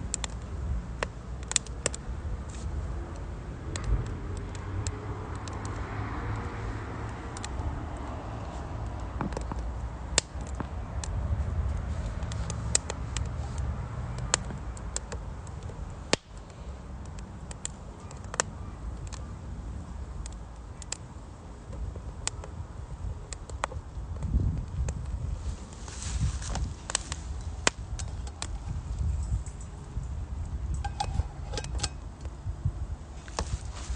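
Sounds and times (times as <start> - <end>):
firewood crackling and popping: 0.0 - 33.9
low rumble of stove: 0.0 - 33.9
sharp pops: 14.2 - 19.2.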